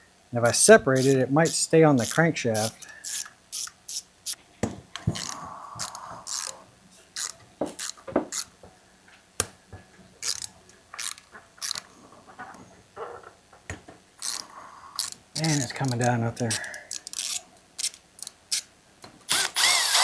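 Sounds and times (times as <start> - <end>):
ratchet wrench clicking: 1.0 - 4.4, 5.2 - 6.5, 7.2 - 8.5, 10.2 - 11.8, 14.2 - 14.4, 15.0 - 18.7, 19.3 - 20.0.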